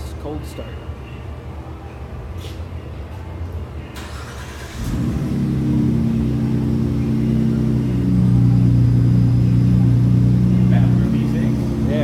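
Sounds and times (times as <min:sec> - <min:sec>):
truck engine cold start idling: 0:04.0 - 0:08.8.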